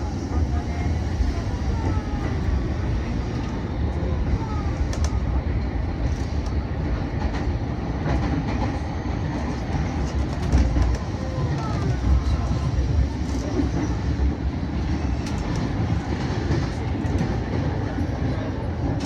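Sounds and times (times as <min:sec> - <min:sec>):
train running low rumble: 0:00.0 - 0:19.0.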